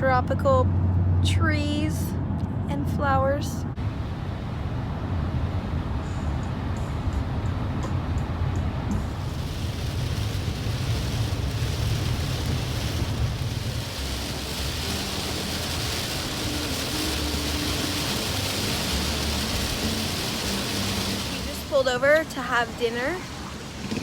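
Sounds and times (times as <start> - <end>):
car road rumble: 0.0 - 24.0
rain on a car: 3.8 - 24.0.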